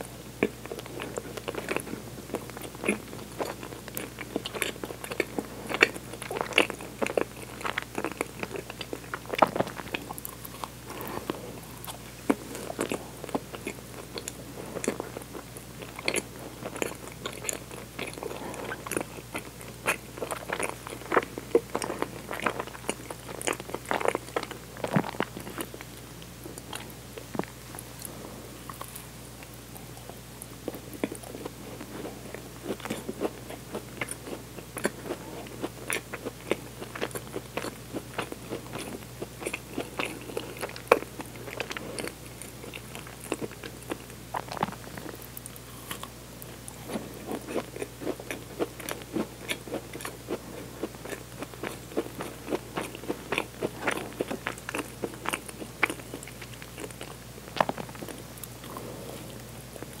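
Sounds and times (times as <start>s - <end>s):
biting and chewing: 0.4s - 60.0s.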